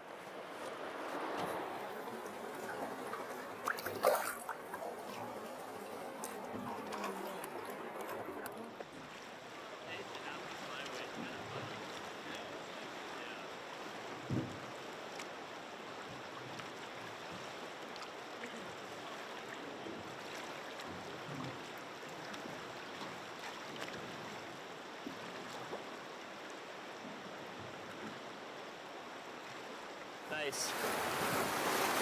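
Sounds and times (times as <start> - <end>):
river water rushing: 0.0 - 11.1, 28.3 - 32.0.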